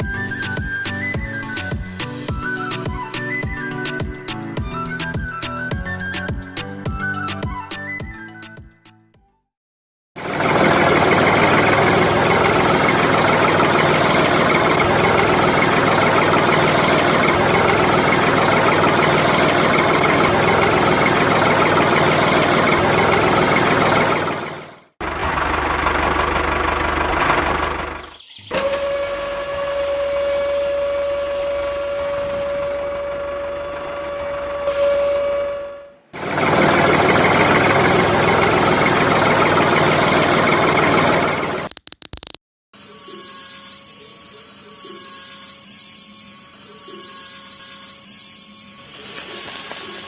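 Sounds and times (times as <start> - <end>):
small engine running: 10.2 - 41.7, 42.8 - 50.0
steady motor whine: 28.5 - 37.1, 48.8 - 50.0.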